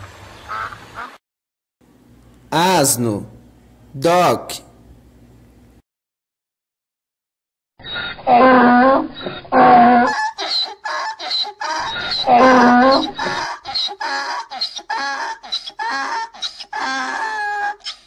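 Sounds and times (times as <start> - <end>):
donkey braying: 7.9 - 18.0.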